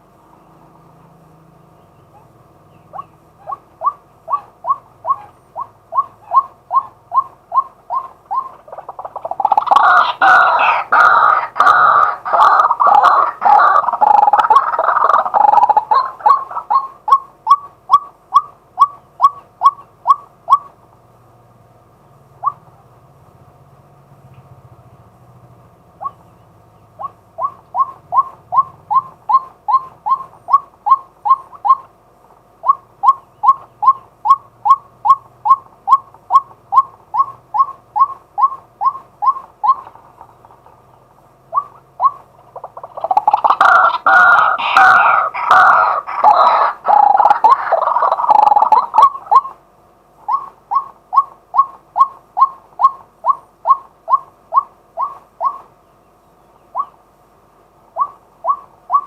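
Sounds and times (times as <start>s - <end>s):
waterhen calling: 2.0s - 20.8s, 26.0s - 32.0s, 32.6s - 49.6s, 50.2s - 57.1s, 57.9s - 59.0s.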